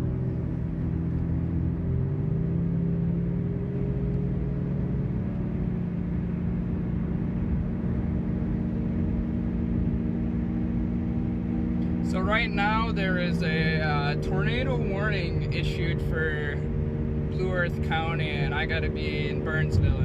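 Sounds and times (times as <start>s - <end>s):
car engine humming: 0.0s - 20.0s.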